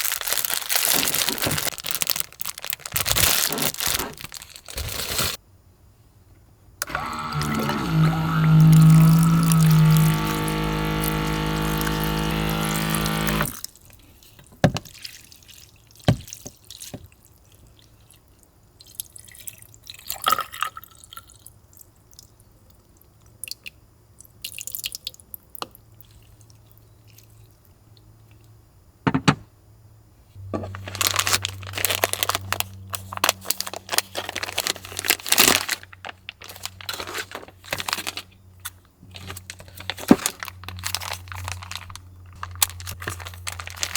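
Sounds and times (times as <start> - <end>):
packaging crinkling and rustling: 0.0 - 5.4, 6.8 - 13.7, 30.4 - 43.9.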